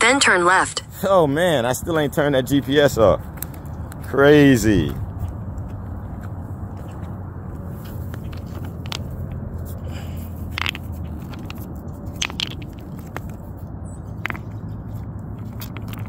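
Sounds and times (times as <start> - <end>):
footsteps on rocks and gravel: 2.5 - 16.0
stone clicking on stone: 8.1 - 16.0.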